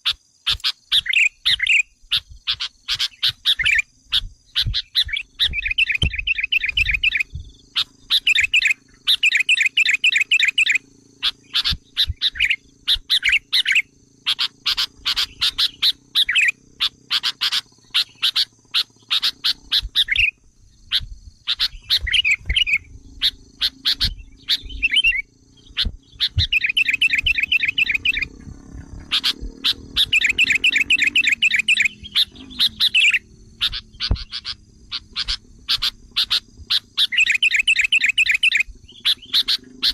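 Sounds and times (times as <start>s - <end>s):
bulbuls chattering trills: 0.0s - 39.9s
sharp bird chips: 0.0s - 39.9s.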